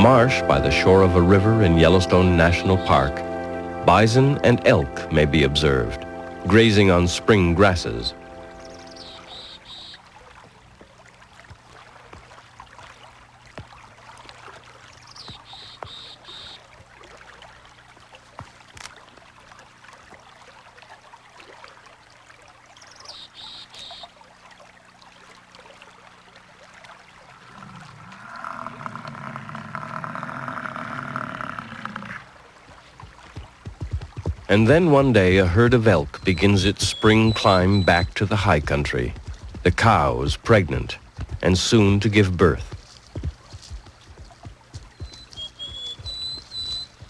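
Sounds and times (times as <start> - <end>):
steady pitched tone: 0.0 - 9.7
short high bird call: 8.5 - 10.0, 45.1 - 47.0.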